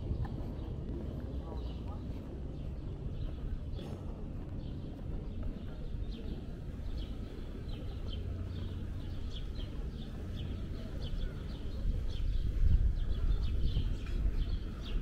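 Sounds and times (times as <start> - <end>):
small birds chirping: 0.2 - 15.0.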